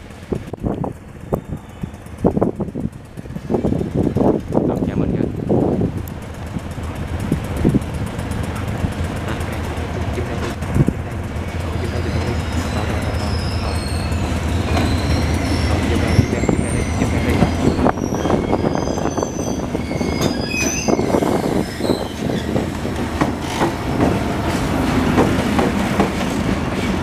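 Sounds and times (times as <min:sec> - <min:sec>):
locomotive engine rumble: 0:00.0 - 0:27.0
wheels squealing: 0:11.4 - 0:25.1.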